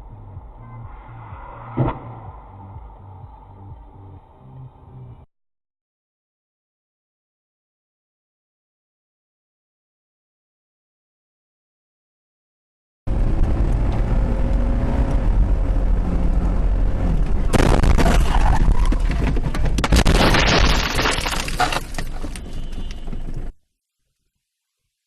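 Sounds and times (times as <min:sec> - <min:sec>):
engine and road rumble: 0:00.0 - 0:05.3, 0:13.1 - 0:23.6
loud crash impact: 0:17.5 - 0:22.7
crunching and breaking: 0:17.5 - 0:23.0.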